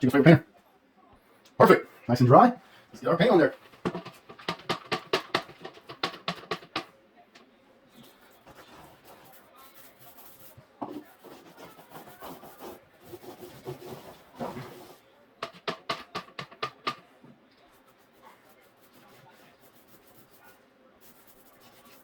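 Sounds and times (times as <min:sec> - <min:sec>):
applicator scraping on wall: 0:03.2 - 0:06.9, 0:10.8 - 0:17.0.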